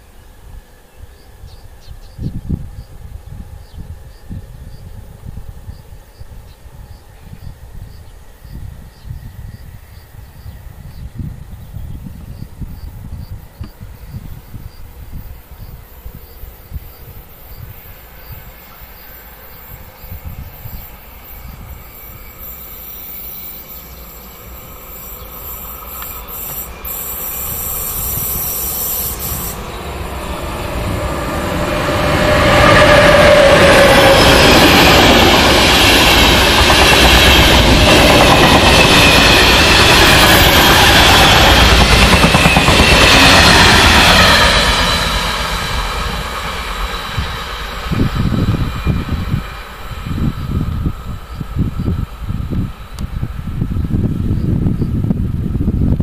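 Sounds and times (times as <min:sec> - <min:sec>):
train wheels rolling on rails: 0:13.3 - 0:55.5.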